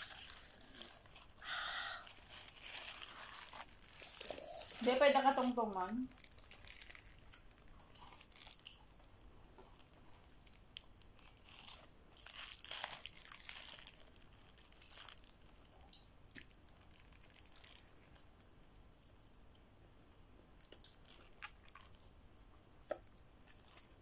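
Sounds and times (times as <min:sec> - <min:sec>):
paper wrapper crinkling: 0:00.0 - 0:09.1, 0:09.7 - 0:18.2, 0:20.9 - 0:22.1, 0:23.4 - 0:24.0
food crunching: 0:00.0 - 0:18.4, 0:20.6 - 0:22.2, 0:22.8 - 0:24.0
close-up chewing: 0:06.1 - 0:18.4, 0:20.6 - 0:22.2.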